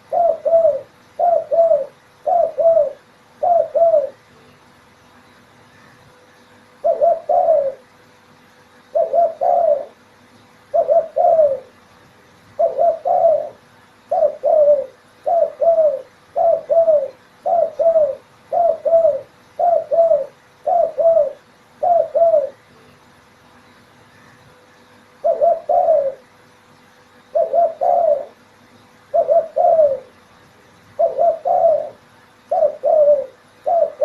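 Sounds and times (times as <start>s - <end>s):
dove cooing: 0.0s - 4.3s, 6.7s - 7.9s, 8.9s - 10.0s, 10.7s - 11.8s, 12.6s - 22.7s, 25.1s - 26.4s, 27.2s - 28.5s, 29.1s - 30.2s, 31.0s - 34.0s.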